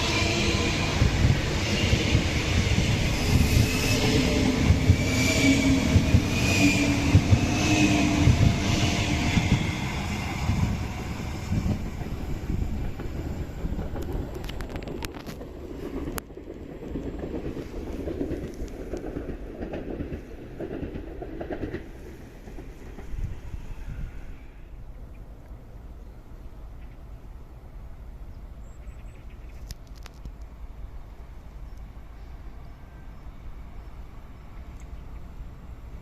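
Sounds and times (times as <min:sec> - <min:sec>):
train wheels clattering on rails: 0:00.0 - 0:23.9.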